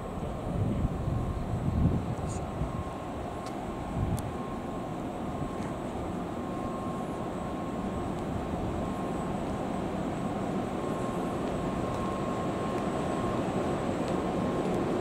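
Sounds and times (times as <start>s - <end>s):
train equipment hum: 0.0s - 15.0s
faint high-pitched tone: 4.2s - 13.7s.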